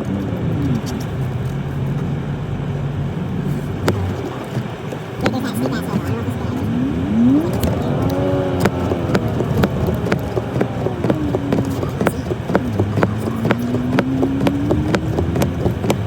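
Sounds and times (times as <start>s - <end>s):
pickup truck engine running: 0.0s - 16.0s
sharp clacks: 7.3s - 16.0s.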